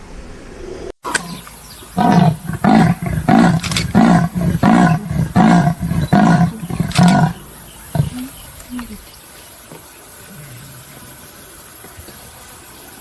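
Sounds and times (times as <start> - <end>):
animal grunting roars: 2.0 - 8.4.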